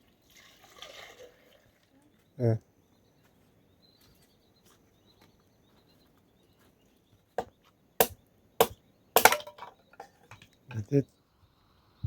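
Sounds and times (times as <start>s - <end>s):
blade chopping into wood: 8.0s - 9.7s.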